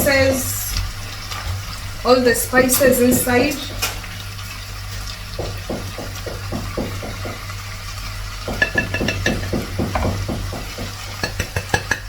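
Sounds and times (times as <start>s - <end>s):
chicken sizzling: 0.0s - 12.0s
spoon scraping pot: 8.5s - 12.0s.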